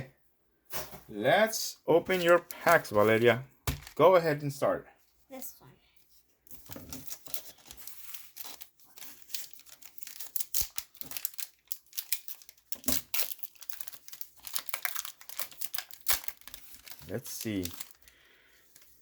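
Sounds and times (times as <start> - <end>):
card wrappers ripping and crinkling: 2.1 - 4.0, 6.6 - 19.0.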